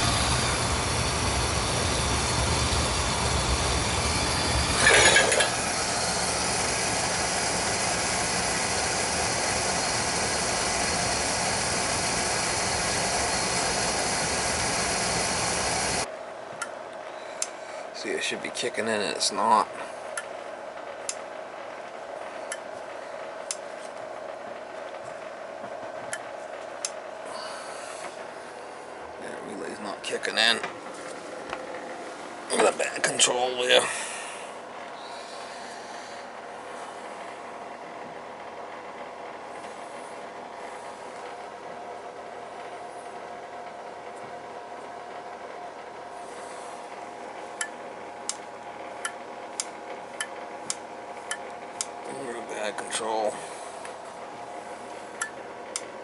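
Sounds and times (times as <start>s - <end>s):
boiler humming: 0.0s - 56.0s
sharp relay clicks: 47.6s - 52.0s.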